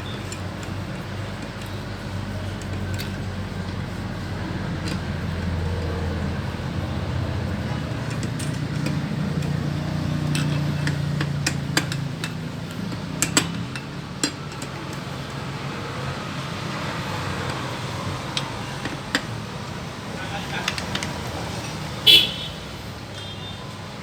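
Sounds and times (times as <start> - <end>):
vehicle engine running: 0.0 - 22.5
tools tapping on metal: 7.5 - 15.3, 17.4 - 19.8.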